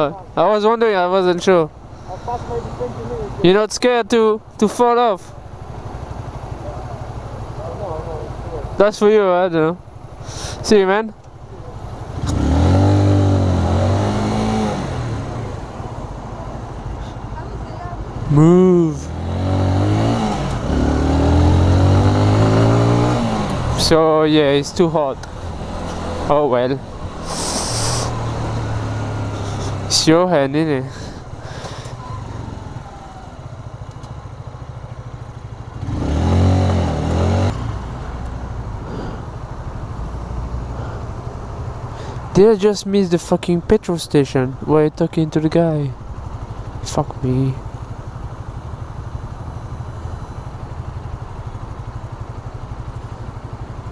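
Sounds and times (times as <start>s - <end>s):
traffic noise: 0.0s - 53.9s
wind: 0.0s - 53.9s
vehicle engine accelerating: 11.3s - 16.3s, 18.2s - 42.4s.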